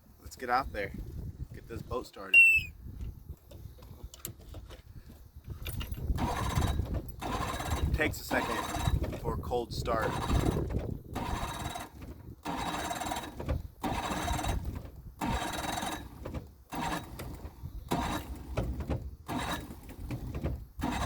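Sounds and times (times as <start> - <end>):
boat motor cranking: 2.2 - 2.7, 5.5 - 21.0.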